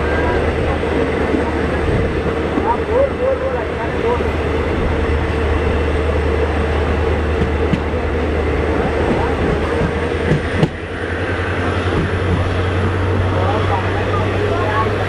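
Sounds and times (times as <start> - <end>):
train rumble inside coach: 0.0 - 15.0
sharp knocks from train wheels: 7.3 - 8.0, 9.0 - 10.9, 11.8 - 12.6.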